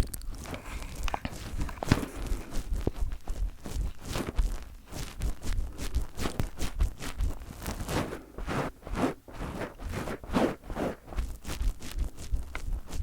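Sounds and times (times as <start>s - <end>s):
fingers tapping on microphone: 11.3s - 13.0s.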